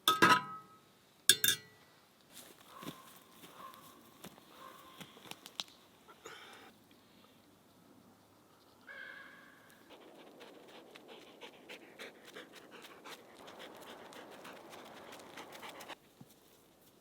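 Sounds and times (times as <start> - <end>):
dog panting: 9.8 - 16.0.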